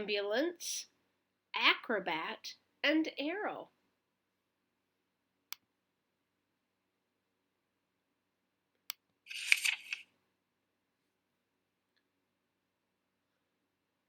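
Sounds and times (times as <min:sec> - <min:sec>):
paper rustling and crackling: 0:09.3 - 0:10.1.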